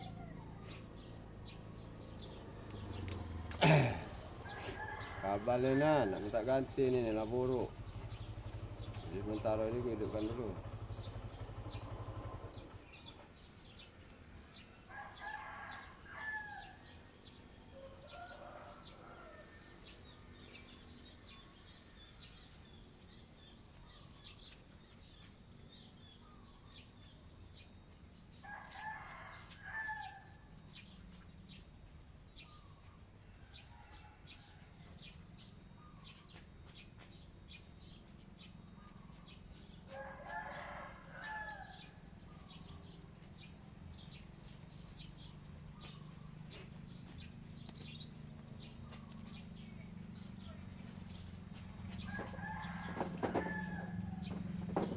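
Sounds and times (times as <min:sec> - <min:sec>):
rooster crowing: 0:03.6 - 0:06.5, 0:14.9 - 0:16.9, 0:17.7 - 0:19.6, 0:28.4 - 0:30.4, 0:39.9 - 0:42.0, 0:52.0 - 0:54.5.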